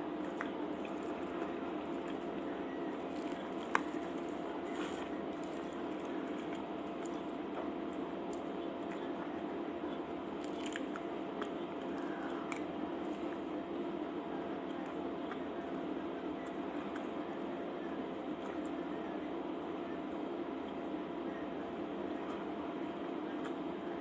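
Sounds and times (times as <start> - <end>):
person chewing food: 10.4 - 13.3.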